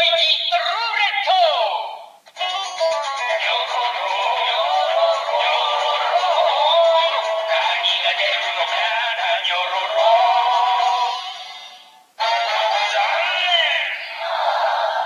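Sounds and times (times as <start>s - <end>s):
toy speaker playing synthesized song: 2.3s - 14.7s
toy tune: 2.4s - 13.0s.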